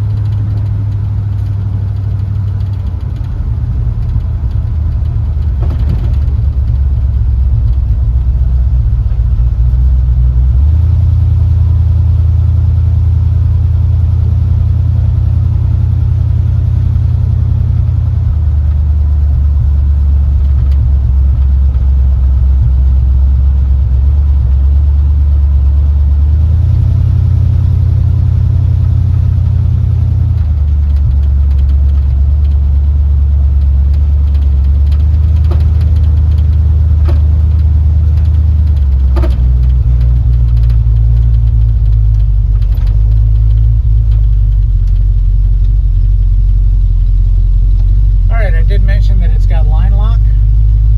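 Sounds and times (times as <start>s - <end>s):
loud engine exhaust note: 0.0s - 50.9s.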